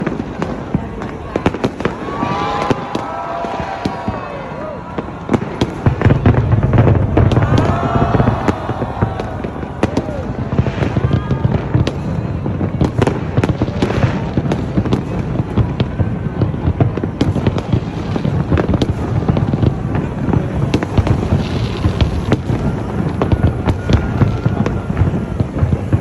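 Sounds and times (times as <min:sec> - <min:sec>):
fireworks bangs and crackles: 0:00.0 - 0:26.0
heavy rumble: 0:06.1 - 0:10.6, 0:19.7 - 0:26.0.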